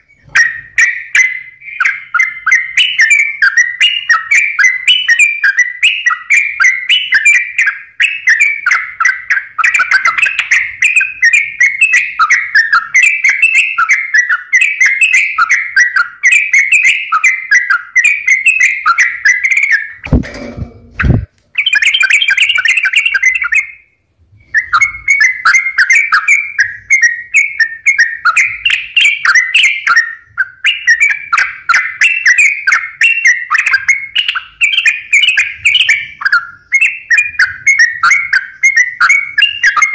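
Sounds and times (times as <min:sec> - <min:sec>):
bird chattering song: 0:00.0 - 0:20.2, 0:20.8 - 0:39.9
low thump: 0:20.0 - 0:21.3.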